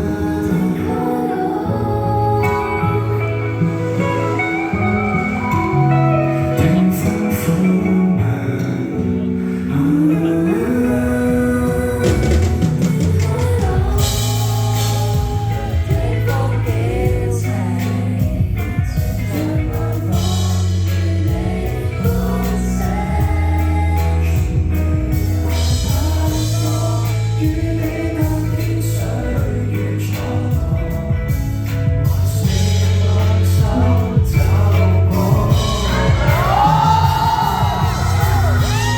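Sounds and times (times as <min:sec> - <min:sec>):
band playing bass drums and guitar: 0:00.0 - 0:38.9
person singing: 0:00.0 - 0:38.9.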